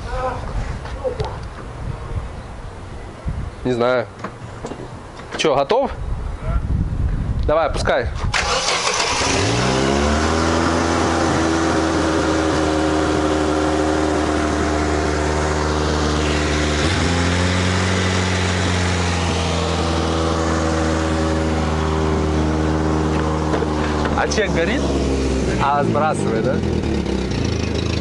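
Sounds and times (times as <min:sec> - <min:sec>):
car engine idling: 0:08.4 - 0:28.0.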